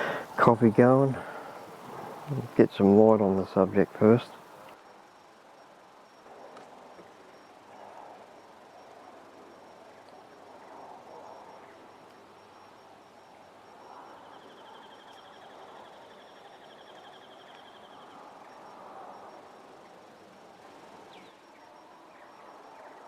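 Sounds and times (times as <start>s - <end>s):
soft rushing hiss: 0.0s - 23.0s.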